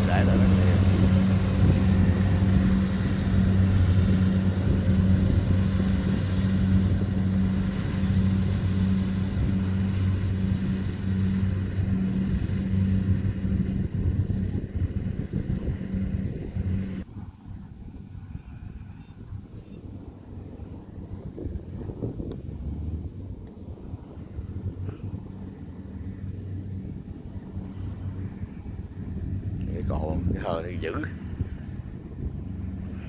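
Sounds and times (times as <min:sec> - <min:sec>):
diesel engine humming with rattle: 0:00.0 - 0:17.1.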